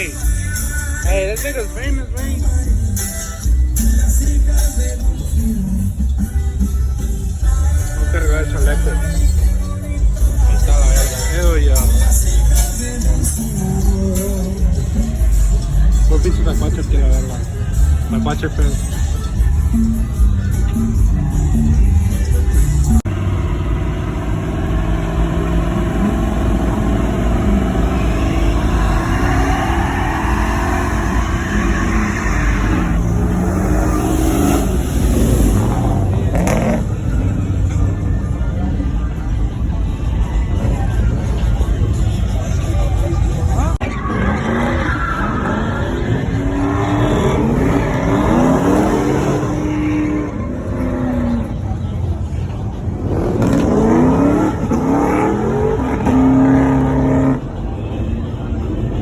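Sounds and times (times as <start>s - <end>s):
music playing: 0.0s - 44.3s
vehicle engine revving: 22.5s - 39.0s, 45.8s - 57.7s.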